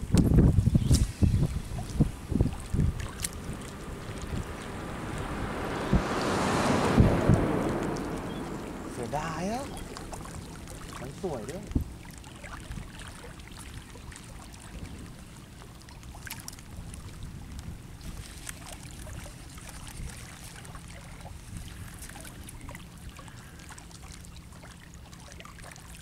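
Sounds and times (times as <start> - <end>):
wind rumble on microphone: 0.0 - 23.6
light water sounds: 0.0 - 26.0.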